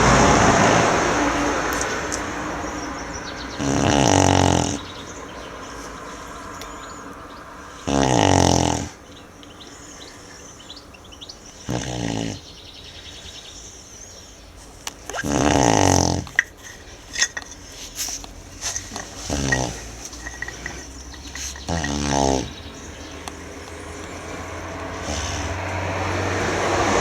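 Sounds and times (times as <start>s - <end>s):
dog snoring deeply: 0.0s - 5.2s, 7.7s - 9.0s, 11.6s - 12.7s, 15.1s - 16.4s, 19.0s - 27.0s.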